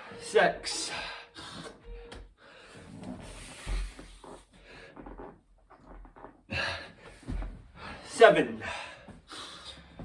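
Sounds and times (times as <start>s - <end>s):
hands and feet thudding on floor: 7.0s - 7.8s.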